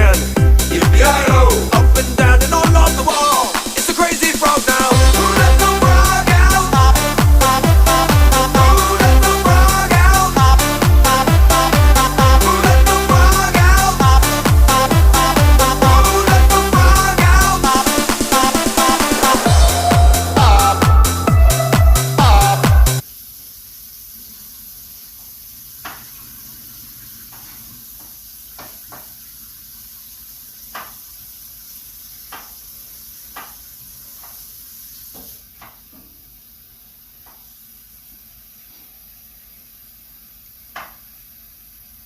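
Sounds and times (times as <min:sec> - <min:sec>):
music: 0:00.0 - 0:23.0
steady hiss: 0:22.9 - 0:42.0.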